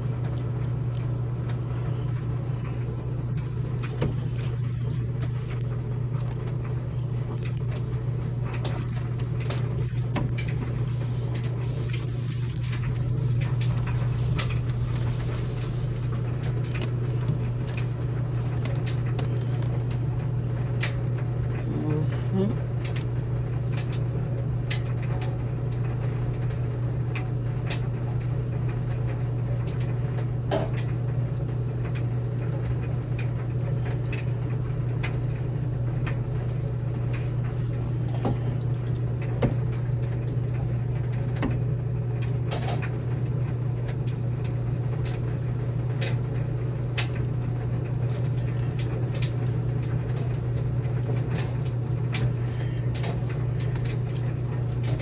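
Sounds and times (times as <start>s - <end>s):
washing machine hum: 0.0s - 55.0s
small clicks and taps: 18.6s - 20.0s.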